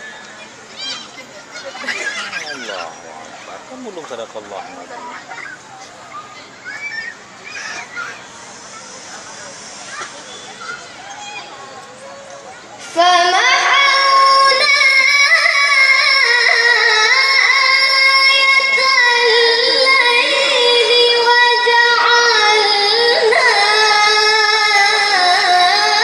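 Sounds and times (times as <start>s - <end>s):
child reciting melodically: 12.8s - 26.0s.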